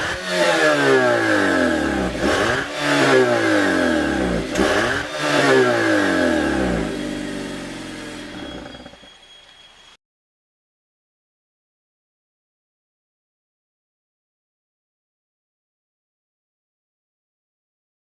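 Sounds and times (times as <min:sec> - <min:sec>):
car engine revving and idling: 0:00.0 - 0:09.0.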